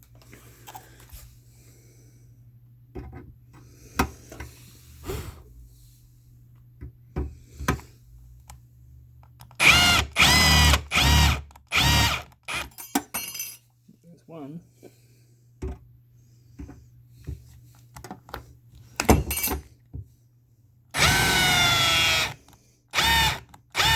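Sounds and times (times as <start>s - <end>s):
cordless drill drilling metal rivets: 9.6s - 12.8s, 21.0s - 23.9s.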